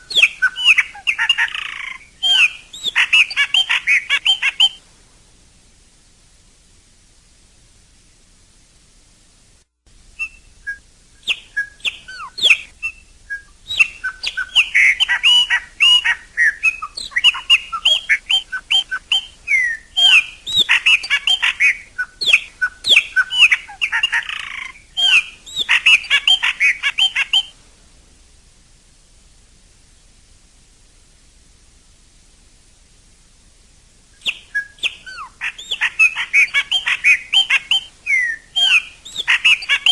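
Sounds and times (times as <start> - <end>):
blackbird singing whistles: 0.0 - 4.8, 10.2 - 27.5, 34.2 - 39.9.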